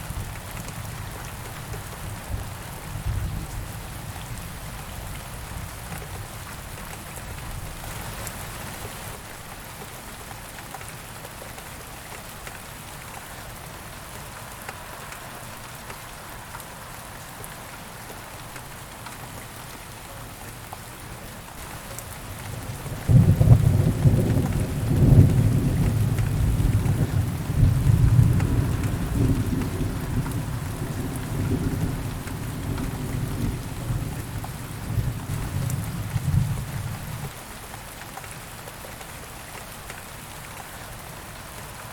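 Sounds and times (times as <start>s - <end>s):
steady rain: 0.0s - 41.9s
thunder crack and rumble: 22.5s - 37.3s.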